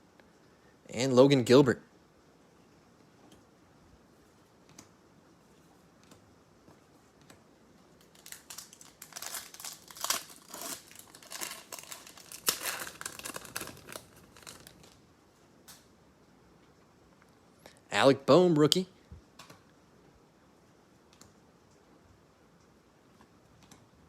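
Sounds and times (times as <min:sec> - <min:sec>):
foil wrapper tearing and crinkling: 0:08.0 - 0:15.0.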